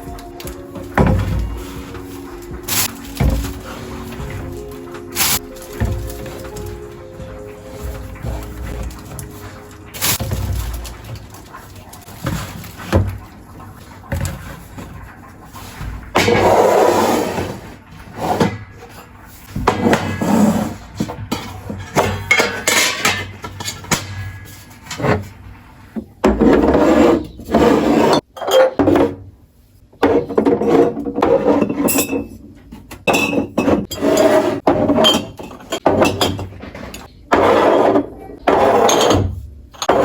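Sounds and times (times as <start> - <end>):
jars knocking and clinking: 0.0 - 13.2.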